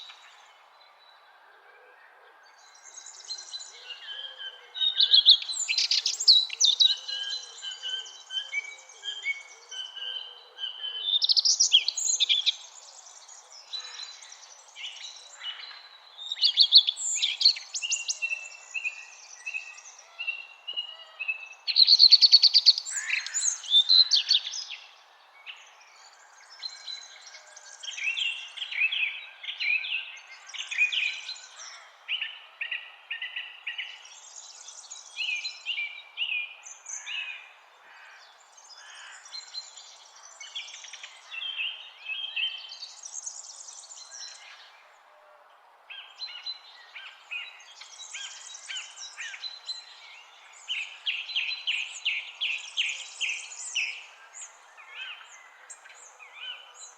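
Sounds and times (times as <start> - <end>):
birds singing and chirping: 2.1 - 45.1, 45.9 - 56.9
outdoor background hiss: 10.6 - 56.9.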